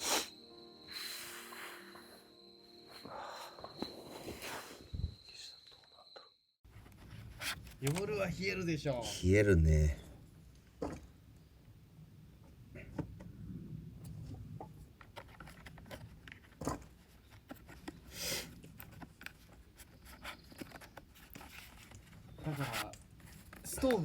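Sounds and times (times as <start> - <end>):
wood fire crackling: 22.2 - 24.0.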